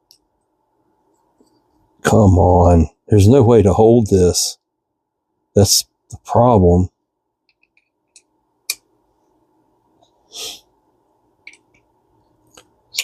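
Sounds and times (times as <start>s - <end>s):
puff of breath: 10.3s - 10.7s.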